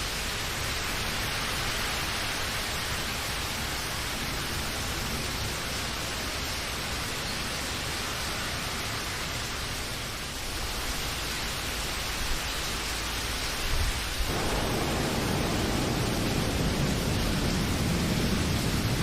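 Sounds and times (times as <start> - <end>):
steady rain hiss: 0.0 - 19.0.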